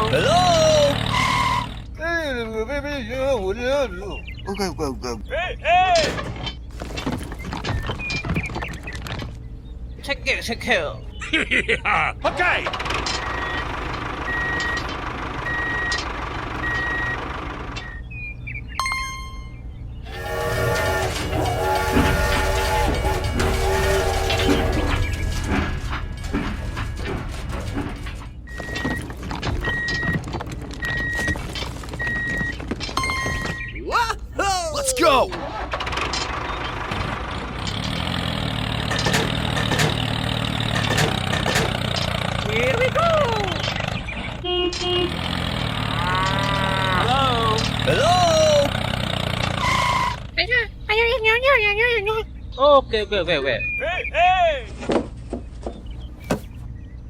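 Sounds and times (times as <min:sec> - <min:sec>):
vehicle reversing alarm beeps: 0:14.2 - 0:16.0, 0:16.6 - 0:19.5, 0:28.5 - 0:30.2, 0:30.8 - 0:31.4
machine hum: 0:20.0 - 0:29.2.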